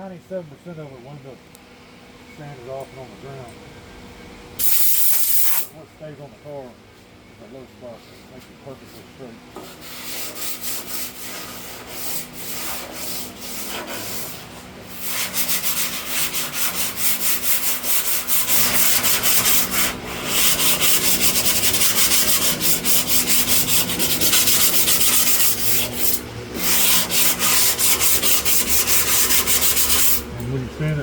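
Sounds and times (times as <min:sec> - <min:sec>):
sandpaper rasping on body filler: 0:09.6 - 0:30.3.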